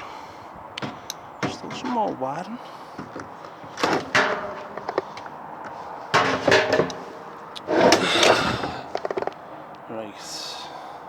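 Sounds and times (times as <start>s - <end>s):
metal parts clattering and scraping: 3.0s - 9.4s.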